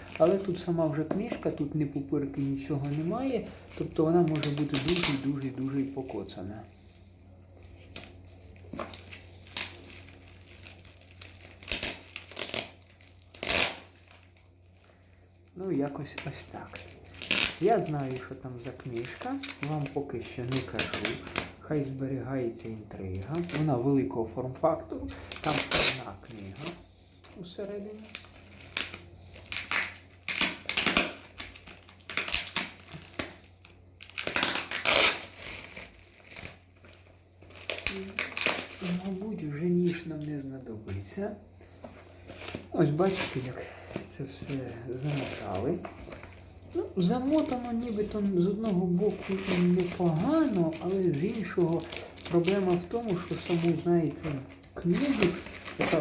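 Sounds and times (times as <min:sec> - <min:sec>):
envelope crinkling: 0:00.0 - 0:40.3, 0:41.6 - 0:56.0.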